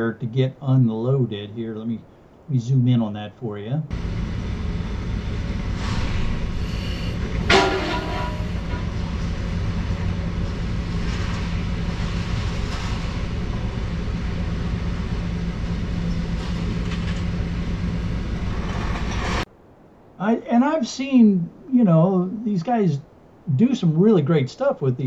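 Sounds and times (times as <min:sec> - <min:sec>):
diesel engine running: 0:03.9 - 0:19.5
loud metallic crash: 0:03.9 - 0:19.5
scrap metal clanking and scraping: 0:05.8 - 0:09.2.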